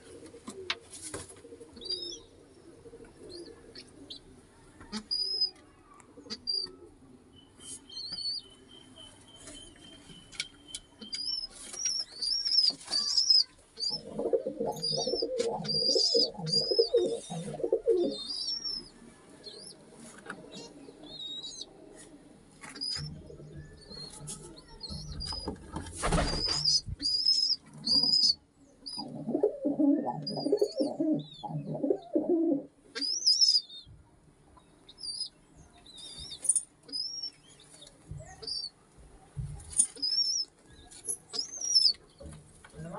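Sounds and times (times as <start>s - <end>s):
pigeons cooing: 0.0s - 5.0s, 13.8s - 18.4s, 26.2s - 32.7s
wings flapping: 25.8s - 26.8s
high bird chirps: 26.2s - 29.2s, 33.0s - 33.9s, 34.9s - 37.5s, 40.0s - 42.0s.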